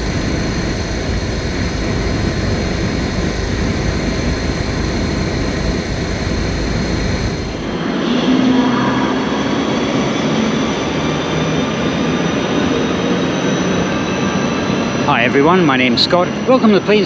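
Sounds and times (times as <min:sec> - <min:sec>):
faint high whine: 0:00.0 - 0:07.9.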